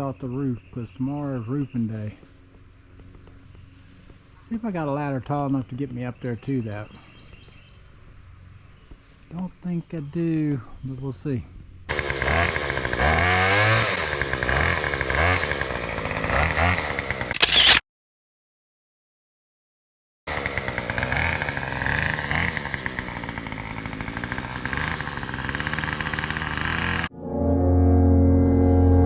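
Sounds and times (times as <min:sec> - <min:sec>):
chainsaw revving: 0:11.9 - 0:17.8, 0:20.3 - 0:27.1.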